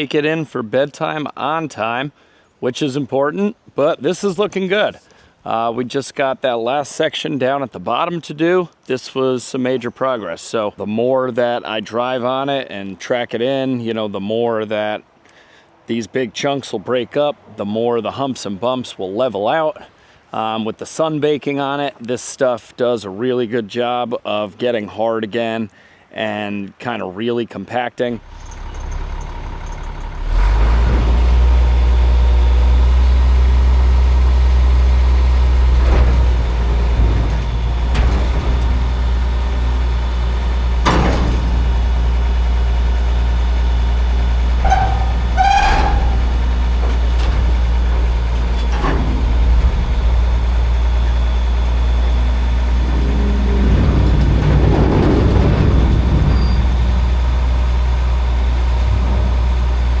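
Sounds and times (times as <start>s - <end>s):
tractor diesel engine running: 28.2s - 60.0s
knocks and clanks: 35.7s - 42.1s, 44.6s - 50.7s, 52.6s - 57.4s, 58.5s - 60.0s
short squeal: 44.6s - 47.2s, 50.8s - 54.4s, 56.2s - 57.1s.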